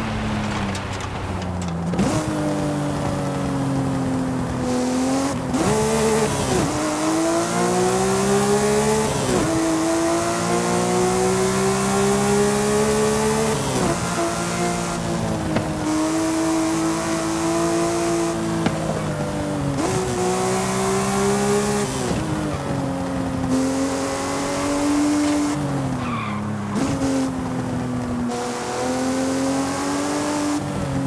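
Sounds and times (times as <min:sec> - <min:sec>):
car engine running: 0:00.0 - 0:31.0
wind rush and road noise: 0:00.0 - 0:31.0.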